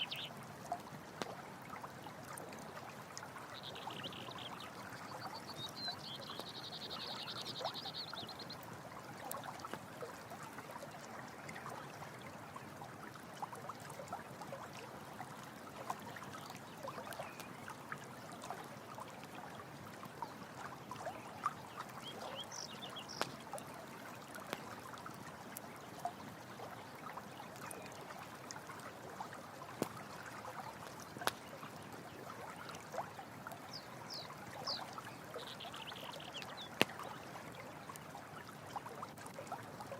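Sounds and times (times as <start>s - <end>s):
stream water rushing: 0.0s - 2.0s
campfire crackling and popping: 23.2s - 23.4s, 31.2s - 31.4s.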